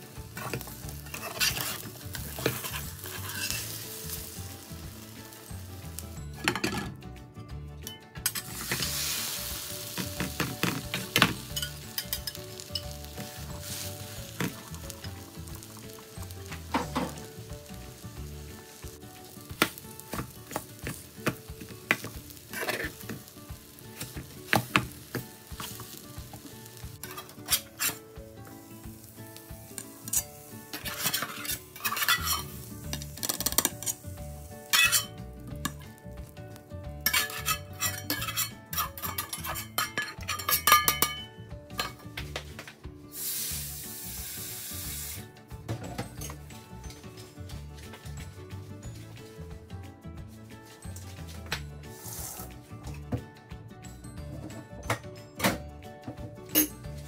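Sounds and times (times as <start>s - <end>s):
omelette sizzling in a frying pan: 0.0s - 6.4s, 8.3s - 36.0s, 37.0s - 41.0s, 43.1s - 45.3s, 51.9s - 52.5s
spatula scraping and knocking pan: 0.3s - 4.4s, 8.2s - 15.0s, 15.6s - 17.5s, 19.4s - 28.1s, 29.7s - 34.0s, 34.6s - 36.0s, 37.0s - 42.6s.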